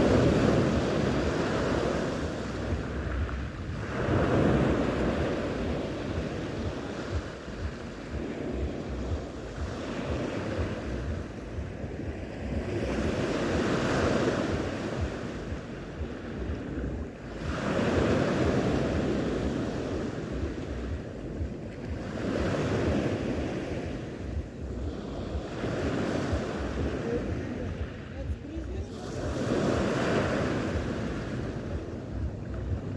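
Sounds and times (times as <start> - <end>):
sea waves breaking: 0.0 - 32.9
wind buffeting microphone: 0.0 - 32.9.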